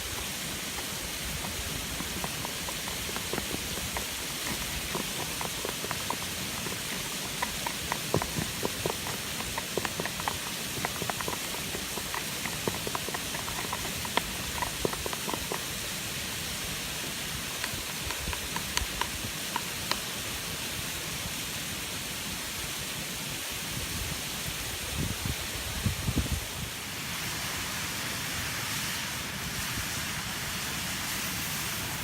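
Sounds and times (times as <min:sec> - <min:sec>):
fire popping and crackling: 0:00.0 - 0:16.6, 0:17.2 - 0:20.2.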